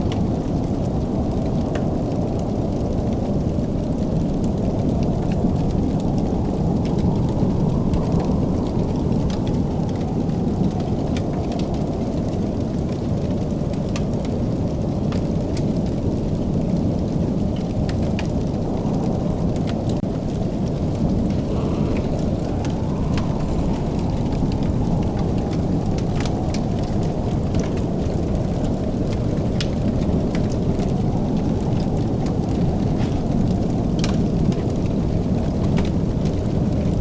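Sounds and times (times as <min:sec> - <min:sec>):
fire crackling and popping: 0:00.0 - 0:37.0
wood fire rumbling: 0:00.0 - 0:37.0.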